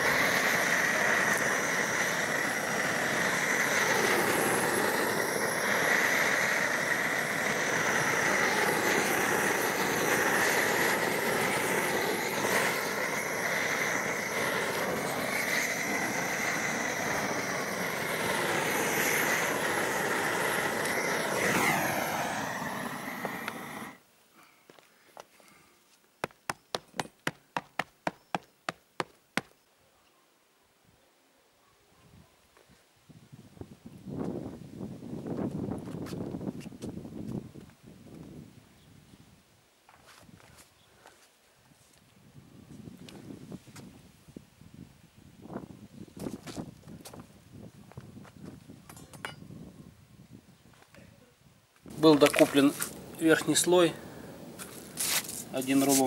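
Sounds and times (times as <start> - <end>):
gas burner roaring: 0.0 - 24.0, 51.9 - 56.0.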